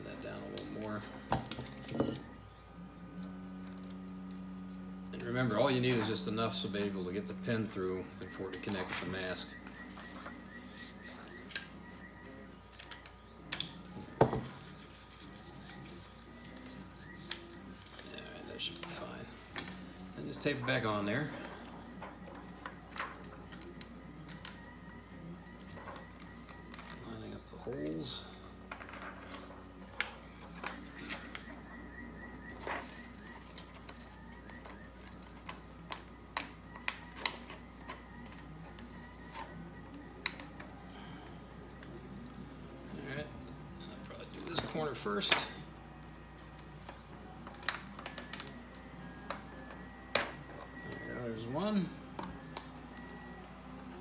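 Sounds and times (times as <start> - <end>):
faint steady high tone: 3.2 - 45.8
plastic parts clicking and tapping: 12.6 - 18.0.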